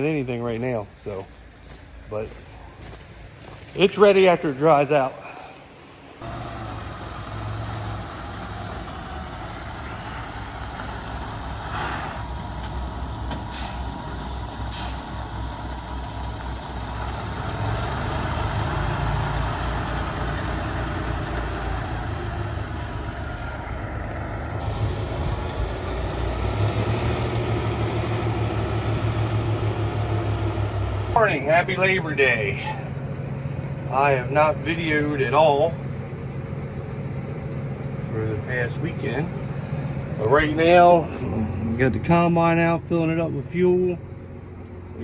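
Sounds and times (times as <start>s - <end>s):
diesel truck engine running: 0.0s - 45.0s
short air hisses: 13.4s - 15.2s.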